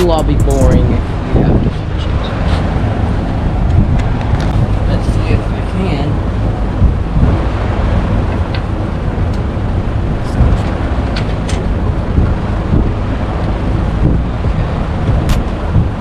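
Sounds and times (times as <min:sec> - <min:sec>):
sharp clicks: 0:00.0 - 0:00.9.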